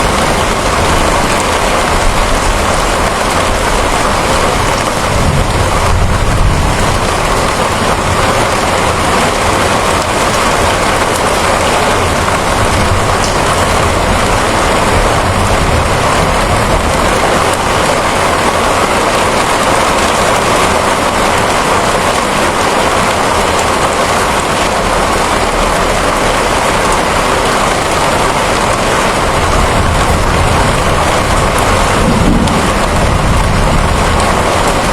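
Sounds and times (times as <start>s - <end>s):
steady rainfall: 0.0s - 34.9s
low rumble: 28.5s - 34.9s.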